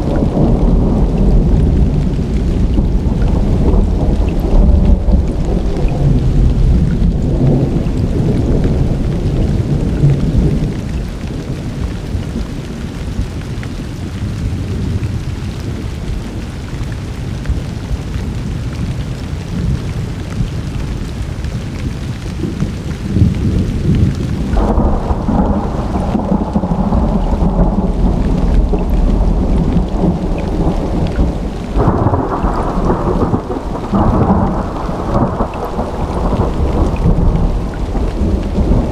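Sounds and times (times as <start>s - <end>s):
rolling thunder: 0.0s - 12.5s, 22.4s - 38.9s
steady rain: 0.0s - 38.9s.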